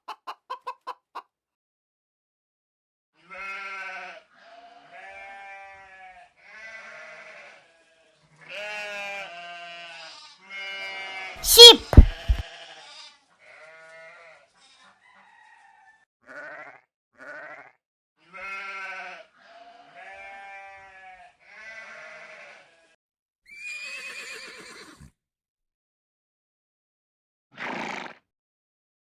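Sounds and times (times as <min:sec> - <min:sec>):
sheep bleating: 0:03.2 - 0:15.0, 0:16.2 - 0:23.0.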